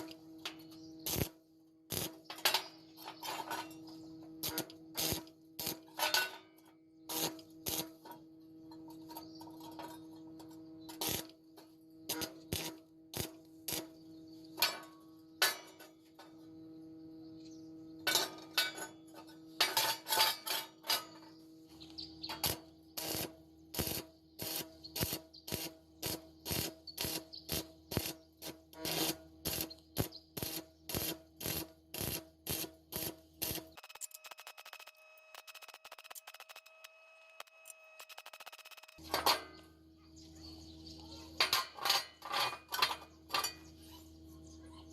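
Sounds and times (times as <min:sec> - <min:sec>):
hand tool striking iron: 0:14.6 - 0:16.2, 0:18.0 - 0:21.3.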